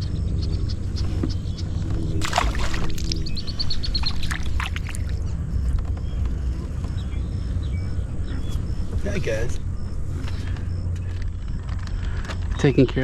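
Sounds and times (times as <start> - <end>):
steady low rumble: 0.0 - 12.5
small bird calling: 0.6 - 9.0.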